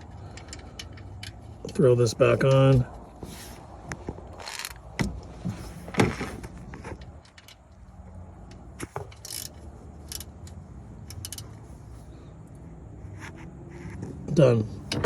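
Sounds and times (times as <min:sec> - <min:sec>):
metal clinks and knocks: 0:00.0 - 0:02.8, 0:04.2 - 0:11.7.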